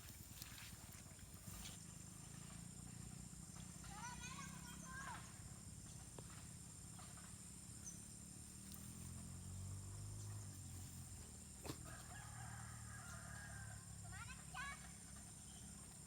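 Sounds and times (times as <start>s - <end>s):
rooster crowing: 11.8s - 13.9s.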